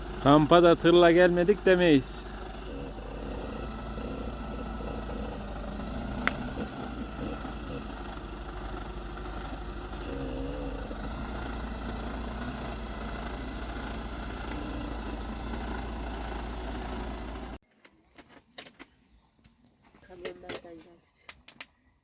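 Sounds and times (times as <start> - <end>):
diesel engine idling: 0.0 - 17.6.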